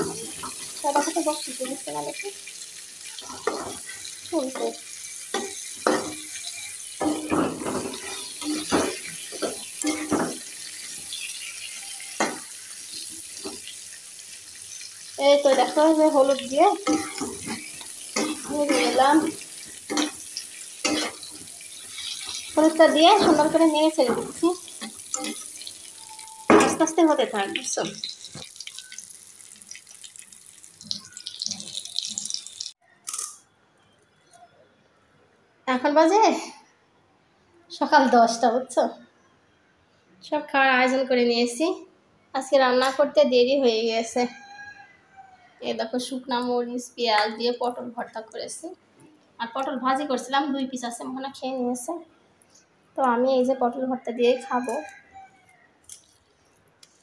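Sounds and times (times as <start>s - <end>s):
vegetables sizzling in hot oil: 0.0s - 32.8s
metal spatula scraping a pan: 5.3s - 13.7s, 15.4s - 27.0s.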